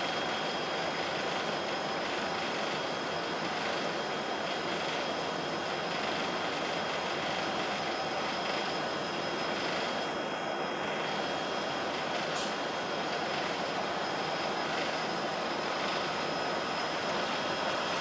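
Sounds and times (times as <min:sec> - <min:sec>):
faint high whine: 0:00.0 - 0:18.0
train rushing rumble: 0:00.0 - 0:18.0.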